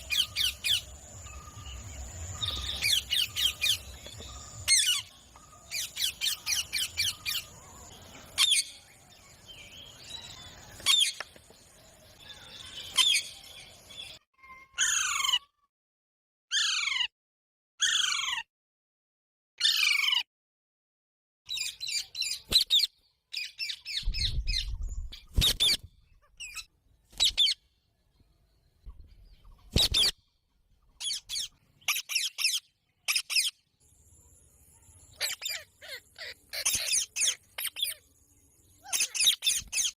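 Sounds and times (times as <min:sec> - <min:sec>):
parrots squawking and chattering: 0:02.4 - 0:05.1, 0:14.6 - 0:15.6, 0:16.5 - 0:17.1, 0:17.8 - 0:18.5, 0:19.6 - 0:20.2, 0:25.4 - 0:27.6, 0:31.0 - 0:33.6, 0:35.2 - 0:38.0, 0:38.8 - 0:40.0.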